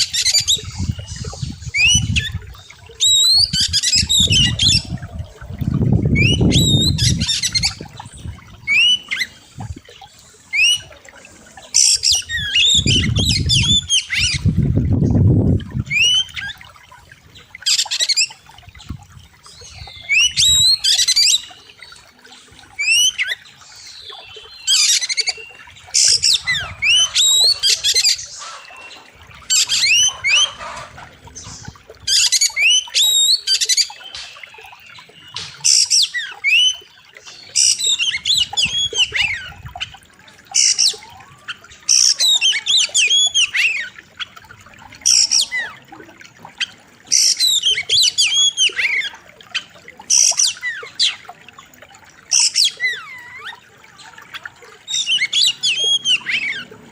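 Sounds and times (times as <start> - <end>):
bird singing whistled phrases: 6.2 - 7.8.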